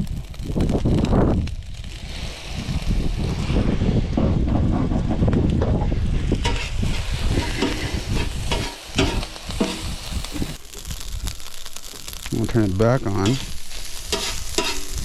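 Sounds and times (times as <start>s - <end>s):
rice frying in a pan: 0.0s - 3.6s, 6.2s - 15.0s
spatula scraping a pan: 6.4s - 10.5s, 13.2s - 15.0s.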